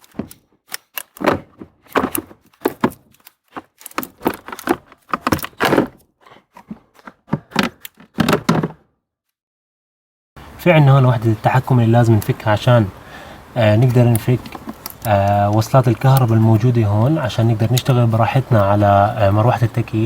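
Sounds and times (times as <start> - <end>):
plastic cover knocks and scrapes: 1.1 - 8.9.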